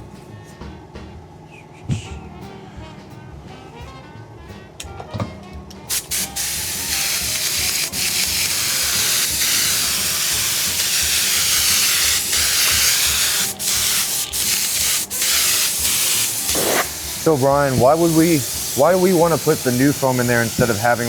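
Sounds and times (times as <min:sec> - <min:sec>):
adhesive spray hissing: 0:05.9 - 0:21.0.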